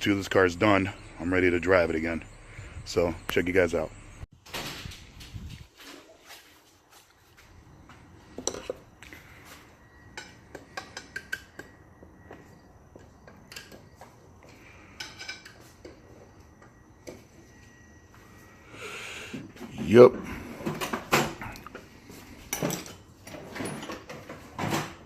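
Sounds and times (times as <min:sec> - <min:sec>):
metal parts and tools clinking: 0:22.4 - 0:24.8.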